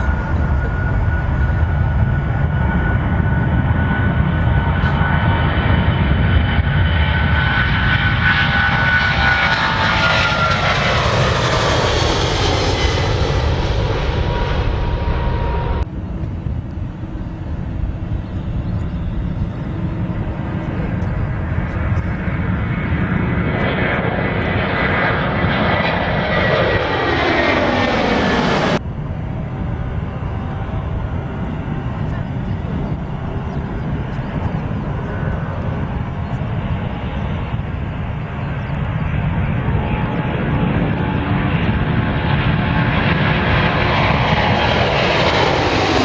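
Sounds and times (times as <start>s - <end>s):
jet airliner engines passing: 0.0s - 46.0s.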